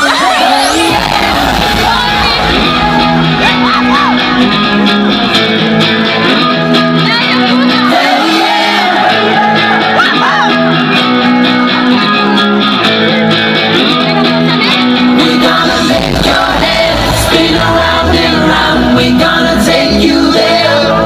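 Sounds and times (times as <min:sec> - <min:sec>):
person singing: 0:00.0 - 0:12.9, 0:13.6 - 0:21.0
guitar: 0:00.0 - 0:21.0
heavy bass: 0:00.0 - 0:21.0
sustained chords: 0:00.3 - 0:07.8, 0:15.0 - 0:21.0.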